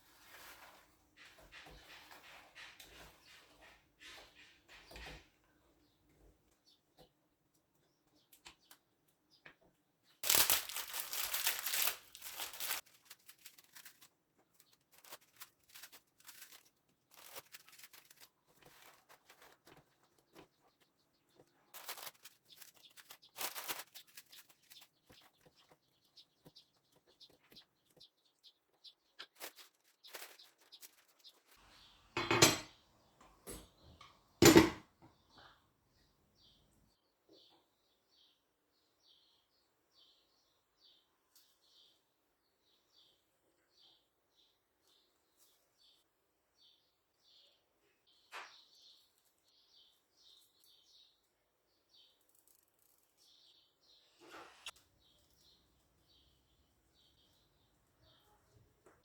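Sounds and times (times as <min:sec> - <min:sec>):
rustling or tearing: 0:10.2 - 0:20.5, 0:21.7 - 0:25.8, 0:29.2 - 0:31.7.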